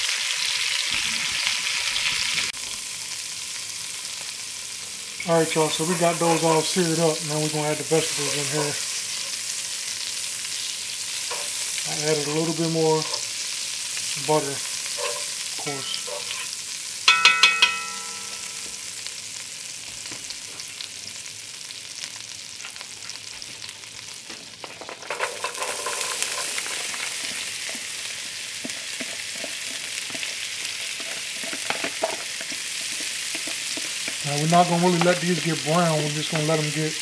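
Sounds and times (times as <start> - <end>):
butter sizzling in a pot: 0.0 - 37.0
tongs scraping vegetables: 5.2 - 9.4, 11.2 - 13.4, 14.2 - 16.6, 24.6 - 36.8
metal tongs clinking on pot: 11.3 - 11.6, 15.0 - 18.7, 24.8 - 27.9, 28.6 - 36.6.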